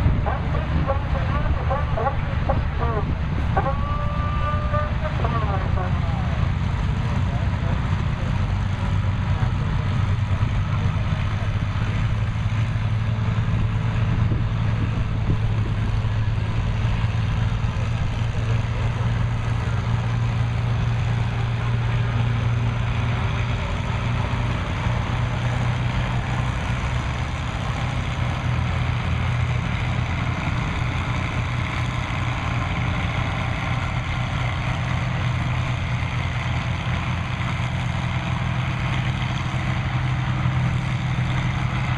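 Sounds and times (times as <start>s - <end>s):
tractor engine under load: 0.0s - 41.9s.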